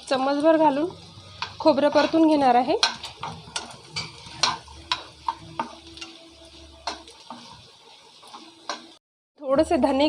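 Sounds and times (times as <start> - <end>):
light sizzle: 0.0 - 10.0
spatula scraping a pan: 1.0 - 9.0.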